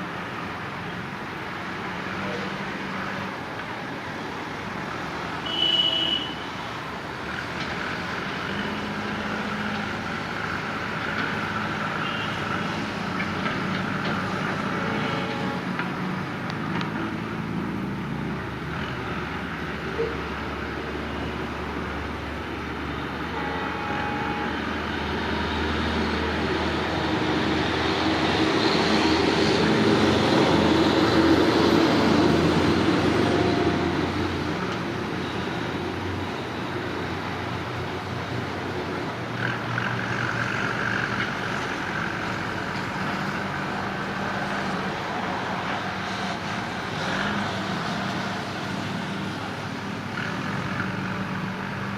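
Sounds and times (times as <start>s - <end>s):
diesel train rumbling past: 20.4s - 49.0s.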